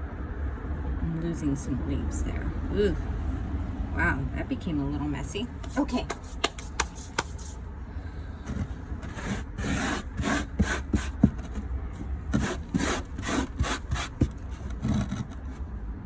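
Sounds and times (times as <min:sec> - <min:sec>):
soil scraping and rubbing: 0:05.5 - 0:07.6, 0:08.4 - 0:15.7.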